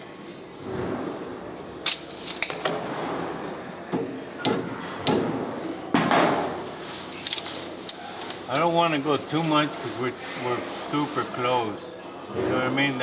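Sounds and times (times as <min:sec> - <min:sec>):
hammer knocking on metal: 0:03.9 - 0:05.6.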